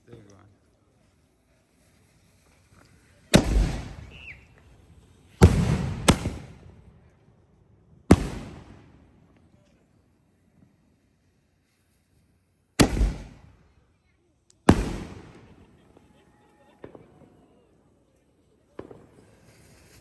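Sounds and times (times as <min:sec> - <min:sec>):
firework bangs with rumbling echo: 0:02.0 - 0:09.6, 0:12.8 - 0:13.8, 0:14.7 - 0:17.4, 0:18.7 - 0:20.0.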